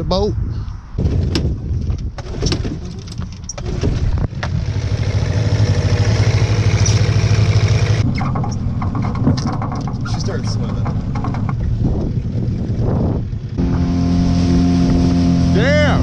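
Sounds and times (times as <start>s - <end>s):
outboard motor running: 3.6s - 16.0s
knocks and clunks: 6.5s - 12.8s.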